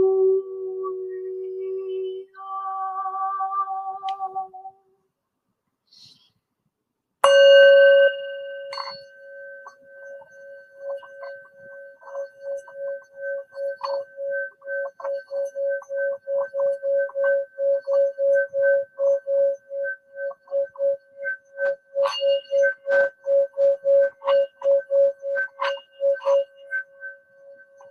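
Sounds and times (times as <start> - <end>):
singing bowl struck: 7.2 - 10.1
singing bowl rim ringing: 7.2 - 27.9.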